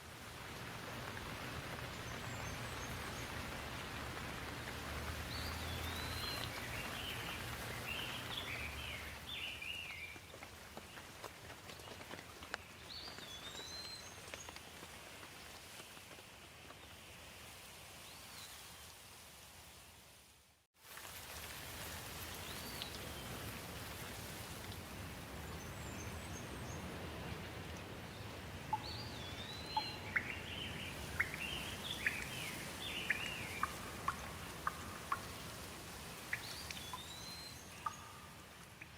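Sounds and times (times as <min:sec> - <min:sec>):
steady rain: 0:00.0 - 0:38.9
birds calling: 0:28.7 - 0:35.4.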